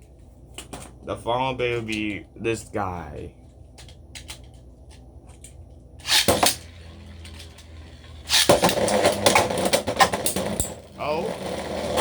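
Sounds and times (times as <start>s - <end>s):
spinning tops launching: 6.0s - 10.8s
spinning tops whirring: 6.0s - 12.0s.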